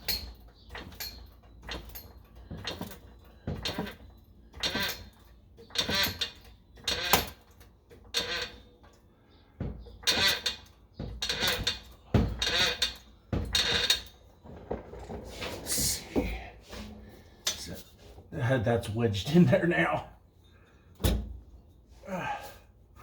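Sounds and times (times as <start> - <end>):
metal pipe scraping and rattling: 0.0 - 9.0, 9.7 - 18.3.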